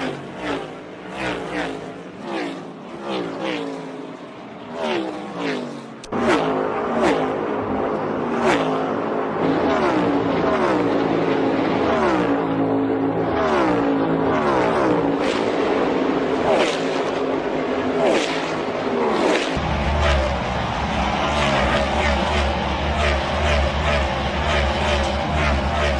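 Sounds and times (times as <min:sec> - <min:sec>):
race car engines passing: 0:00.0 - 0:25.9.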